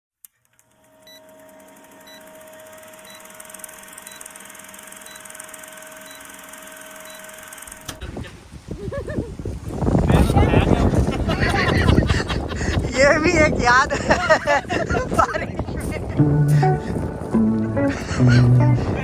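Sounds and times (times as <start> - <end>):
electronic hum and hiss: 0.7 - 8.0
short high beeps: 1.0 - 1.3, 2.0 - 4.4, 5.0 - 6.4, 7.0 - 7.4.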